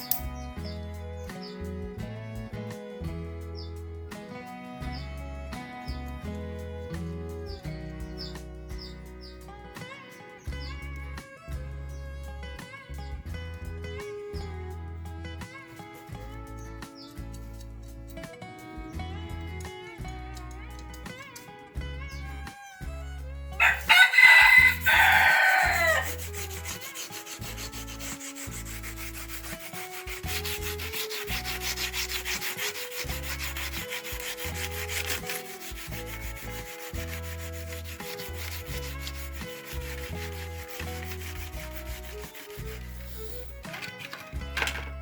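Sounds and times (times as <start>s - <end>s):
rooster crowing: 23.6s - 26.3s
wood being sanded by hand: 23.6s - 43.8s.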